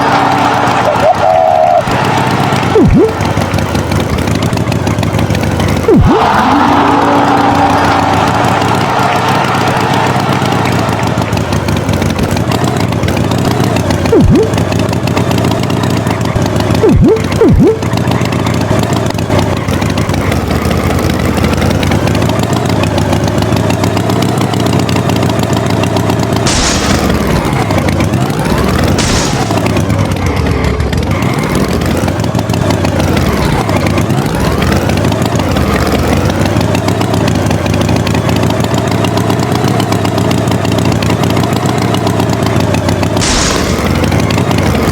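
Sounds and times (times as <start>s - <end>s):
tractor engine running: 0.0s - 44.9s
hiss bursts: 26.5s - 27.1s, 43.2s - 44.0s.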